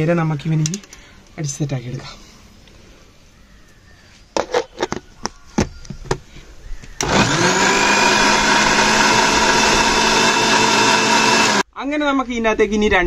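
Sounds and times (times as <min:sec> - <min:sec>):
mixer grinder motor running: 0:07.0 - 0:11.6.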